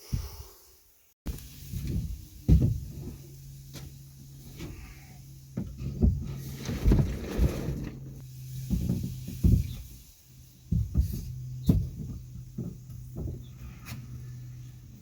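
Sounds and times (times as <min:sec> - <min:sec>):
knocks and clunks: 0:05.6 - 0:09.9, 0:10.7 - 0:14.0.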